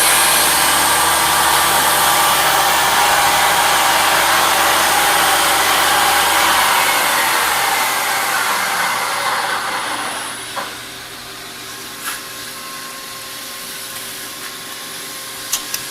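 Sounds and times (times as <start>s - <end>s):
milling machine motor whine: 0.0s - 11.6s
machine hum: 0.0s - 14.3s.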